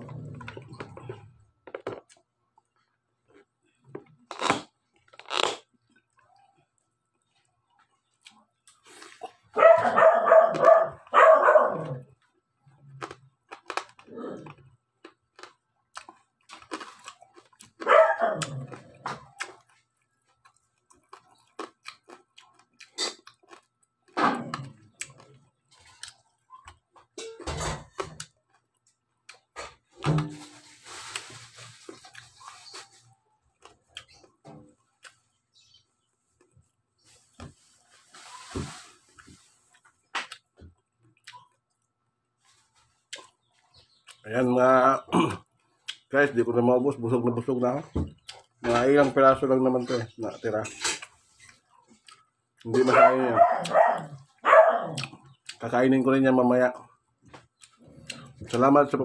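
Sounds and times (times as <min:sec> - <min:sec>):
crunching and chewing: 0:00.0 - 0:55.9, 0:56.7 - 0:59.0
dog barking: 0:09.5 - 0:12.1, 0:17.8 - 0:18.5, 0:52.8 - 0:55.1.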